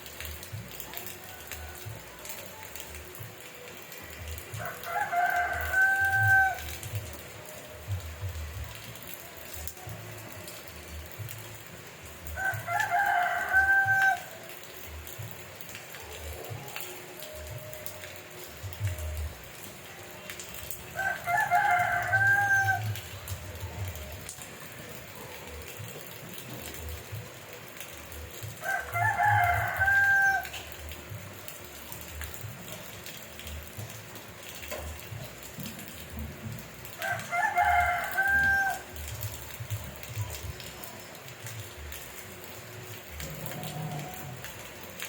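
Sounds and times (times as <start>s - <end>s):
rain hissing: 0.0s - 45.0s
rooster crowing: 4.6s - 6.8s, 12.4s - 14.4s, 21.0s - 23.0s, 28.6s - 30.6s, 37.0s - 39.0s.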